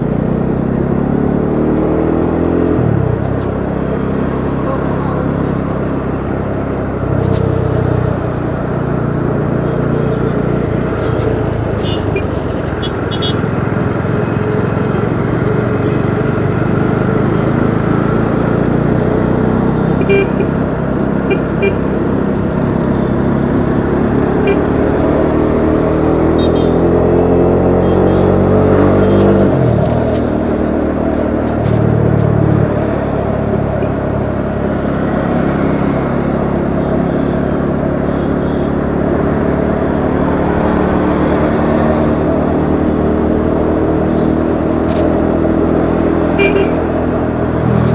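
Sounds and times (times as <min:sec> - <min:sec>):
motorcycle engine accelerating: 0:00.0 - 0:36.5, 0:38.9 - 0:47.9
short horn beeps: 0:20.0 - 0:20.5, 0:21.3 - 0:21.8, 0:24.4 - 0:24.7, 0:26.4 - 0:26.8, 0:46.4 - 0:46.9.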